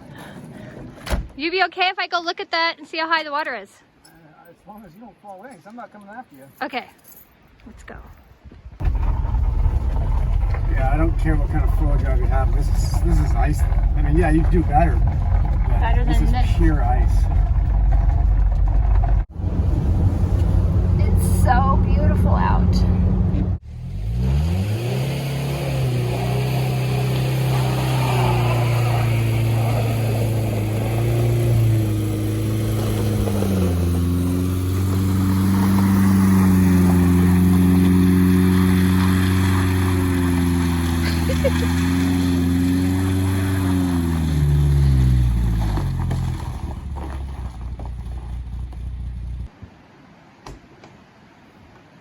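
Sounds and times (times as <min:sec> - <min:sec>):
van engine accelerating: 0:08.8 - 0:49.5.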